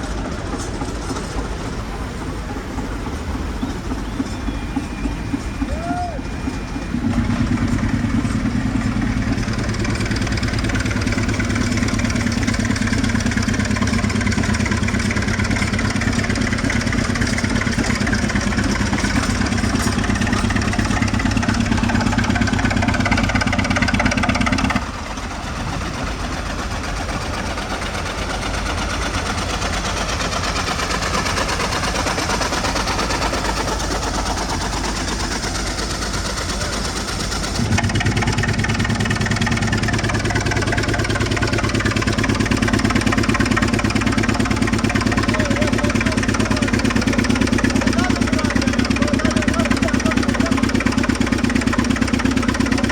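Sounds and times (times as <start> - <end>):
air compressor engine running: 0.0 - 52.9.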